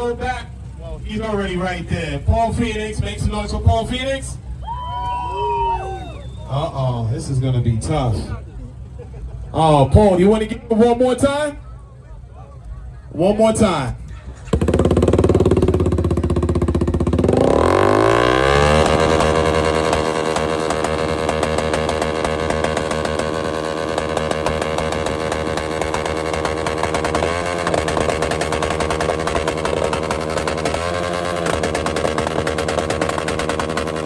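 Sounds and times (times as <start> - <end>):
car engine revving hard: 14.4 - 34.0.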